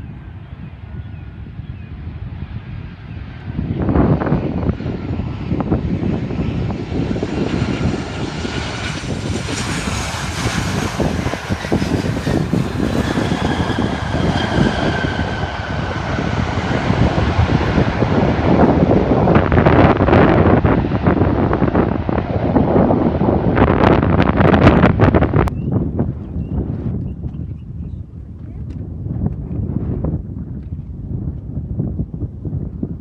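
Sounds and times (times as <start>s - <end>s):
airplane engine passing: 0.0s - 27.0s
high falling engine whine: 3.9s - 27.0s.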